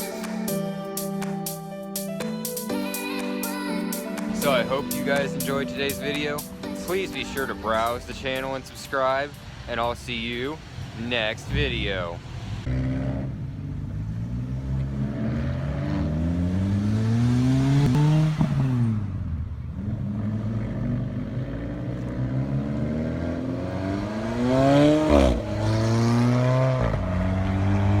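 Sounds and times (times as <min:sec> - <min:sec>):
car engine accelerating: 0:12.4 - 0:28.0.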